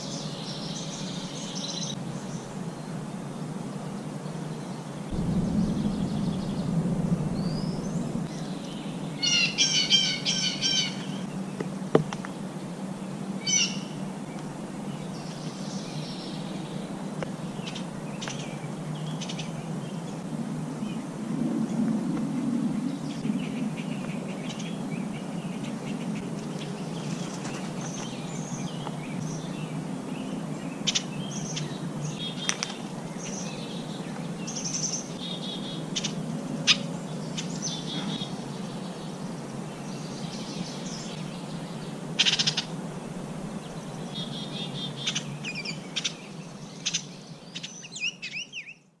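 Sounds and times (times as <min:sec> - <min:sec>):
low background hum: 0:00.0 - 0:48.1
small birds chirping: 0:03.8 - 0:20.2, 0:22.8 - 0:49.0.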